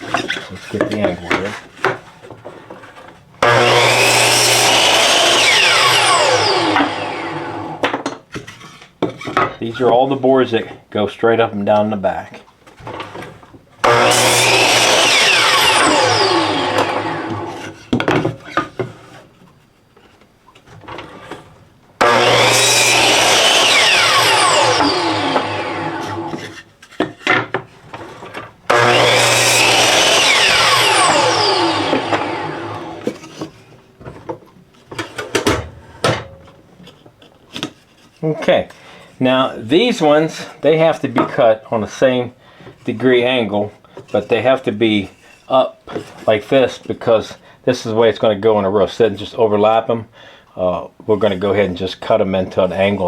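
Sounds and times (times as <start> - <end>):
saw motor winding down whine: 3.4 - 7.8, 13.8 - 17.6, 22.0 - 26.5, 28.7 - 33.1
miter saw cutting wood: 3.4 - 7.9, 13.8 - 17.8, 22.0 - 26.7, 28.7 - 33.5.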